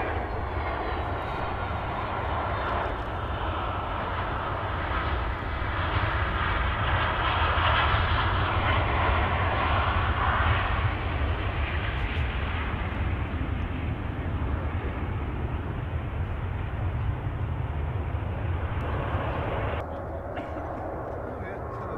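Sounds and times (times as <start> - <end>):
jet engines rushing: 0.0 - 21.9.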